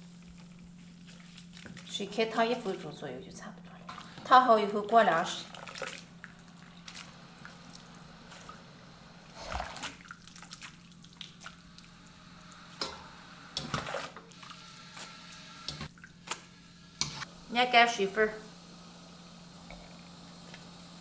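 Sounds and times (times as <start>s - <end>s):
steady low hum: 0.0s - 21.0s
water splashing and dripping: 5.1s - 8.6s, 9.4s - 13.0s.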